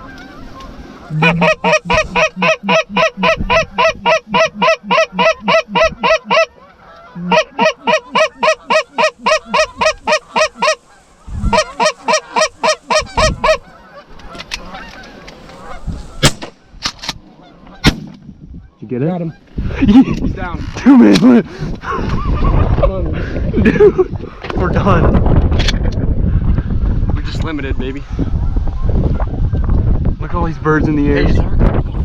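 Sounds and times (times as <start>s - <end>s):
goose honking: 0.0s - 16.2s.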